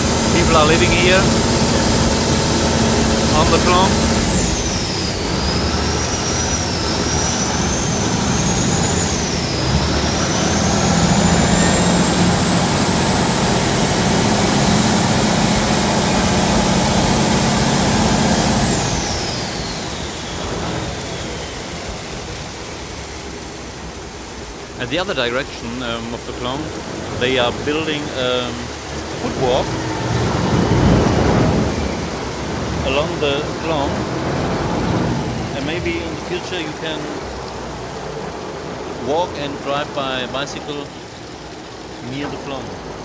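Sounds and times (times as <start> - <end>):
boat diesel engine whining: 0.0 - 43.0.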